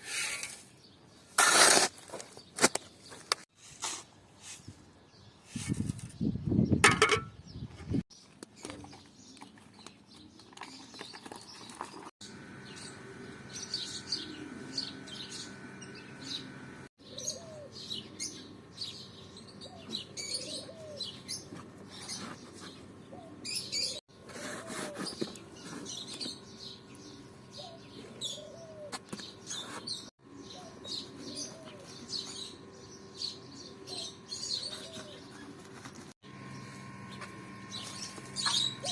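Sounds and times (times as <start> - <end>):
birds chirping: 6.2 - 24.0, 24.9 - 38.9
low arched bird calls: 36.5 - 38.9.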